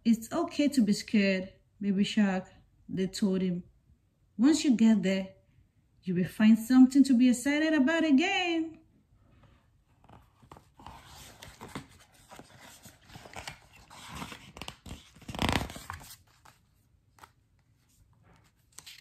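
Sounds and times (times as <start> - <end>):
paper page rustling: 9.9 - 19.0.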